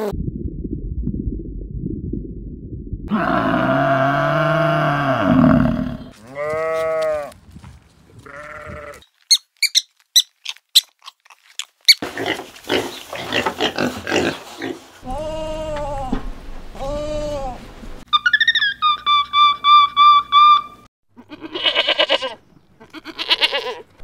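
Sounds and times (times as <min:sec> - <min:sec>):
pigs grunting: 0:03.1 - 0:07.0, 0:12.0 - 0:15.7
cow mooing: 0:03.1 - 0:07.3
sharp high squeaks: 0:09.0 - 0:11.0.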